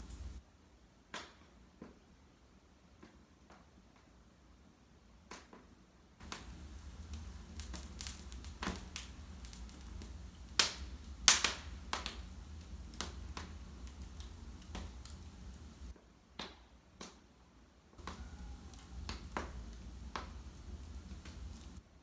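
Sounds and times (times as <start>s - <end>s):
low rumble of flames: 0.0s - 0.4s, 6.2s - 15.9s, 18.0s - 21.8s
wood fire crackling and popping: 0.0s - 0.4s, 6.2s - 16.0s, 18.0s - 21.8s.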